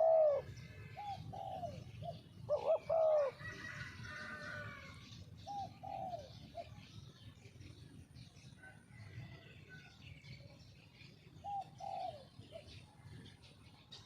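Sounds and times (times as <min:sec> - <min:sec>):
dove cooing: 0:00.0 - 0:06.9, 0:11.2 - 0:13.4
small birds chirping: 0:00.0 - 0:14.0.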